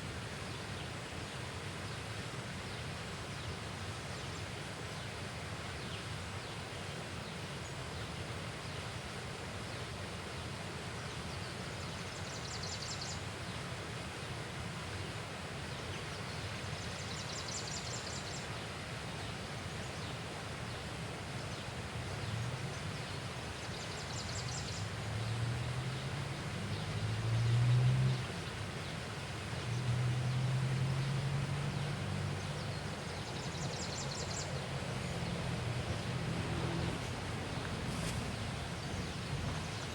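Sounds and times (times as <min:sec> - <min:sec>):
riverside ambience: 0:29.0 - 0:39.9.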